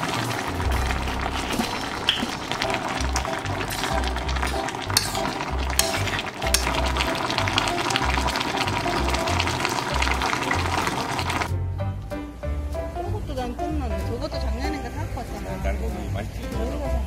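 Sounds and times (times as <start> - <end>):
stew bubbling and crackling: 0.0 - 11.5
background music with bass line: 0.0 - 17.0.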